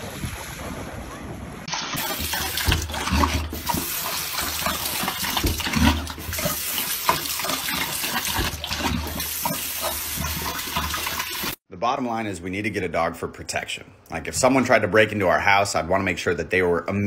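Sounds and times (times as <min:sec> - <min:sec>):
faucet water splashing into sink: 0:01.7 - 0:11.6
dog drinking: 0:02.0 - 0:11.6.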